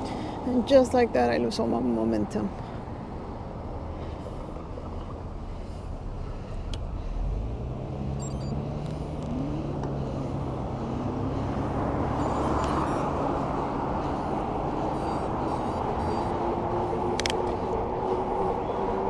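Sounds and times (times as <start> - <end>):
road traffic noise: 0.0 - 19.0
rising tone: 8.0 - 13.9.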